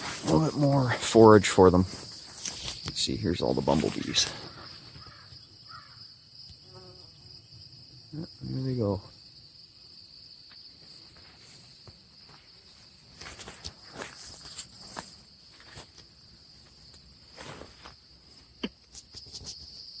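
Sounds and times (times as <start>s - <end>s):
cricket trill: 0.0s - 20.0s
rapid pulsing insect sound: 0.0s - 20.0s
soft rustles and clicks: 1.8s - 4.6s.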